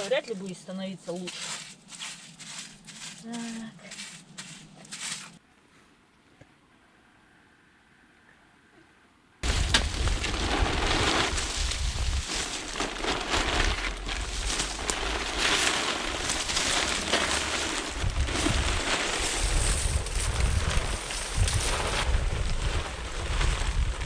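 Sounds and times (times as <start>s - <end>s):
wind buffeting microphone: 9.4s - 16.9s, 17.5s - 24.0s.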